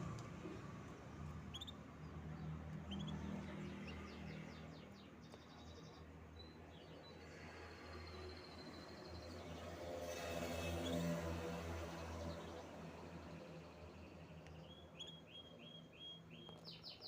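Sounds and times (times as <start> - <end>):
canary singing: 1.4 - 2.0, 2.8 - 4.0, 14.5 - 17.0.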